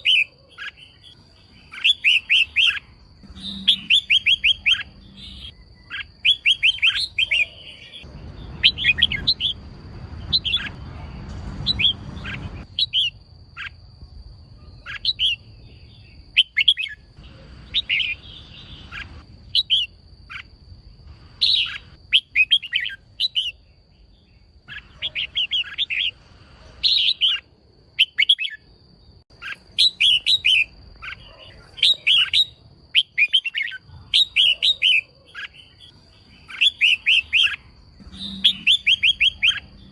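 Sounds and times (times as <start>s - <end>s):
bird chirping in quick bursts: 1.7s - 13.8s, 14.6s - 20.5s, 21.4s - 23.6s.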